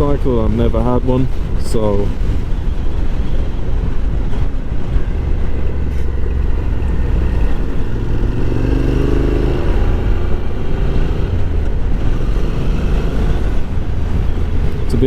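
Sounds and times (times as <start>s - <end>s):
wind noise: 0.0s - 15.0s
motorcycle engine running: 2.2s - 15.0s.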